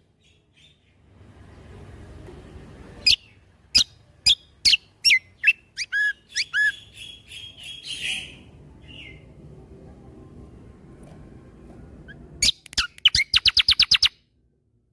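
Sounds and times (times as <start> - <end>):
soft bird twittering: 3.0 - 9.4, 12.1 - 14.2.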